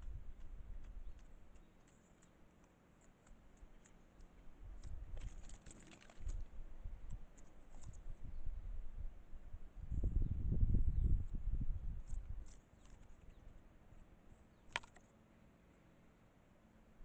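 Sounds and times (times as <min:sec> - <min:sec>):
squirrels clicking and scratching: 0:00.0 - 0:08.2, 0:12.0 - 0:13.6, 0:14.6 - 0:15.2.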